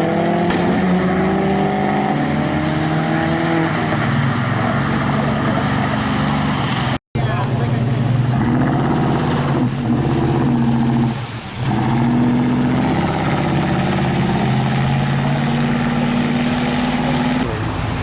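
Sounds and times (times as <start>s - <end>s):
car engine idling: 7.2s - 18.0s.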